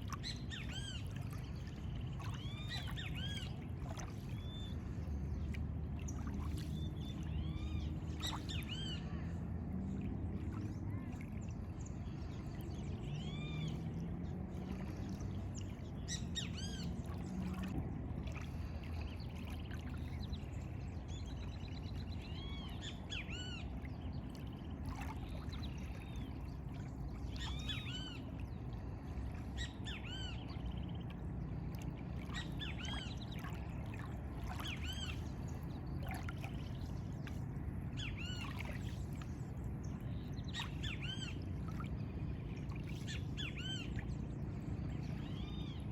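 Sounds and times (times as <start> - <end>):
low ambient rumble: 0.0 - 45.9
birds singing and calling: 27.1 - 31.4, 32.2 - 37.3, 37.9 - 42.2, 42.8 - 45.9.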